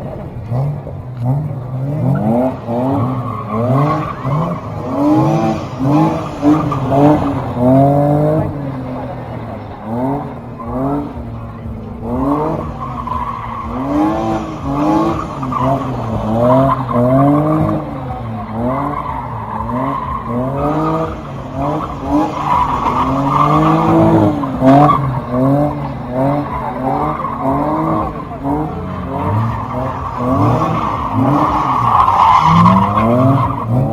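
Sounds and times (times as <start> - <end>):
car engine revving: 0.0 - 33.9
tyre squeal: 12.2 - 33.9.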